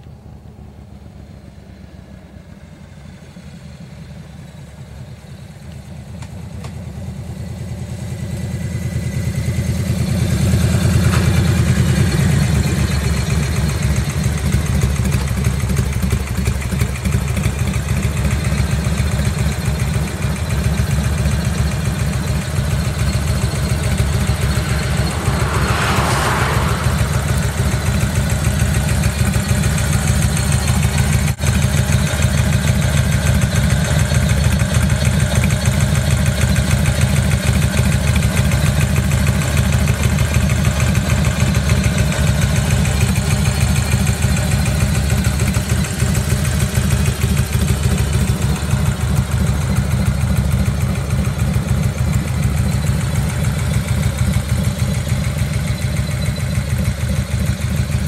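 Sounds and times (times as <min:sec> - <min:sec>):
motorcycle engine idling: 0:00.0 - 0:58.0
car passing: 0:09.0 - 0:15.4, 0:22.2 - 0:30.5.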